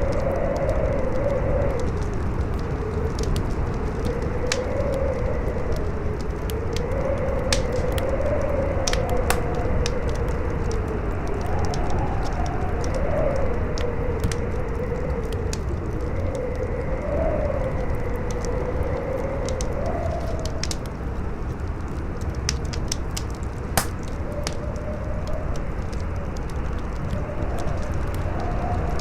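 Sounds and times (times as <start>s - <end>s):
campfire crackling and popping: 0.0s - 16.4s, 17.8s - 29.0s
howling wind: 0.0s - 29.0s.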